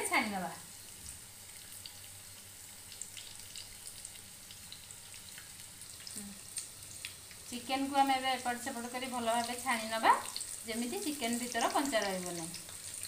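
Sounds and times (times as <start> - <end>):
food deep-frying in oil: 0.0 - 13.0
small crackles and pops: 2.8 - 8.0, 9.4 - 13.0.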